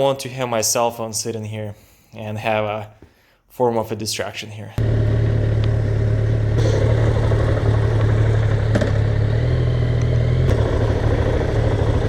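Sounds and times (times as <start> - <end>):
motorcycle engine idling: 4.8 - 12.0.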